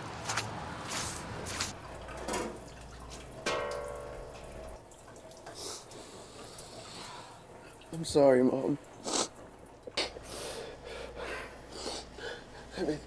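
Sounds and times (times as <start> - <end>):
water dripping in a sink: 1.7 - 10.0
dishware struck ringing: 3.5 - 4.6.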